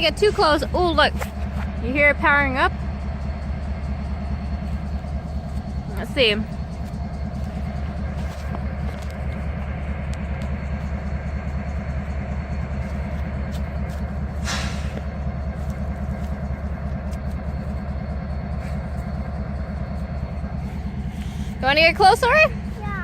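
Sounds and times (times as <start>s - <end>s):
locomotive low rumble: 0.0s - 23.0s
short hiss: 14.4s - 14.9s.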